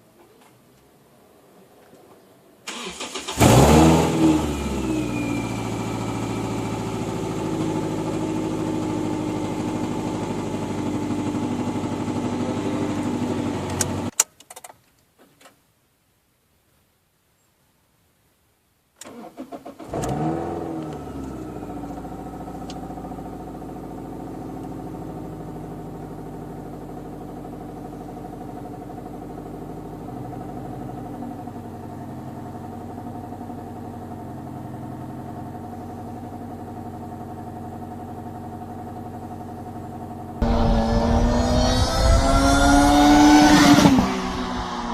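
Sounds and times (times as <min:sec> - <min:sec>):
car engine cranking and starting: 0:02.7 - 0:10.8, 0:19.0 - 0:44.9
car engine idling: 0:02.7 - 0:14.1, 0:20.8 - 0:44.9
engine rev: 0:02.7 - 0:14.1, 0:19.1 - 0:31.5, 0:40.4 - 0:44.9.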